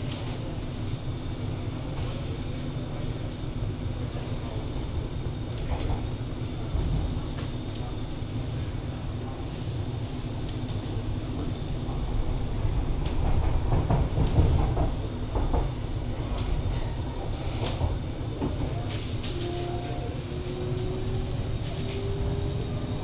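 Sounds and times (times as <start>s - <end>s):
train wheels rumbling on track: 0.0s - 23.0s.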